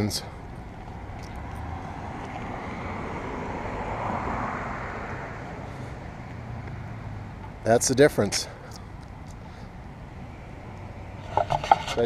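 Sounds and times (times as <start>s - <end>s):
vehicle passing by: 1.2s - 7.8s.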